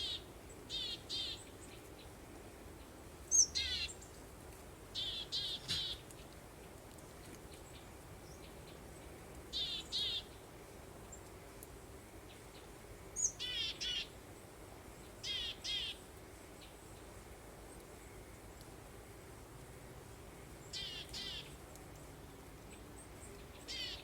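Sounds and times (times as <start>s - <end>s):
soft hiss of breeze: 0.0s - 24.0s
songbird chirping: 2.8s - 4.2s, 5.0s - 11.4s, 12.2s - 17.1s, 20.5s - 24.0s.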